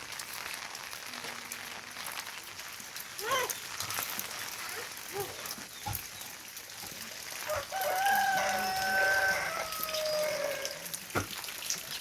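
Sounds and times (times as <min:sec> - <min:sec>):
rooster crowing: 0:07.4 - 0:10.9.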